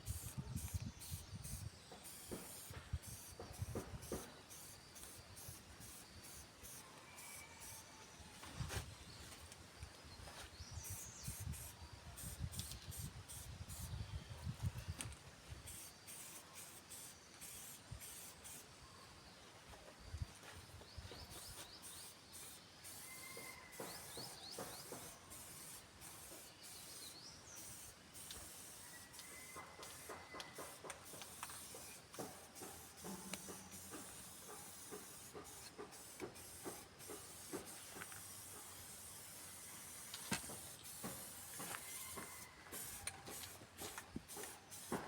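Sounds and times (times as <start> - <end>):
spray paint can hissing: 0.0 - 8.2, 10.7 - 14.1, 15.6 - 18.7, 21.2 - 45.0
faint bird chirps: 0.1 - 9.4, 15.6 - 32.0.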